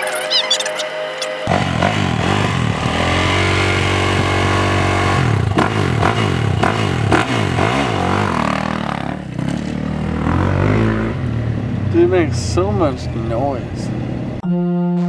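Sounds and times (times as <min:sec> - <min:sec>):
motocross motorcycle engine revving: 0:01.4 - 0:14.4.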